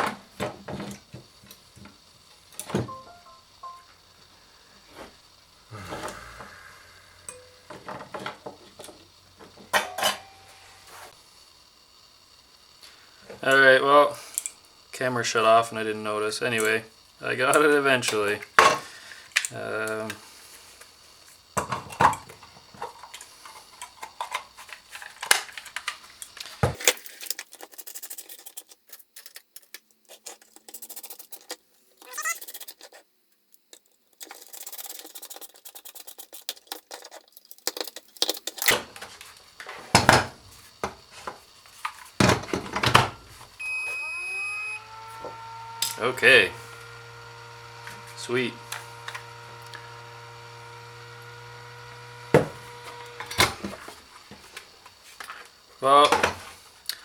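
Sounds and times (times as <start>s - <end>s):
small hard objects clicking: 33.6s - 38.8s.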